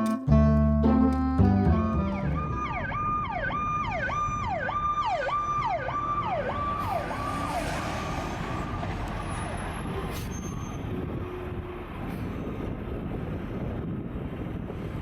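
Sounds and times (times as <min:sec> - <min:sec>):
music: 0:00.0 - 0:02.8
emergency vehicle siren: 0:00.3 - 0:10.2
vehicle noise: 0:00.3 - 0:15.0.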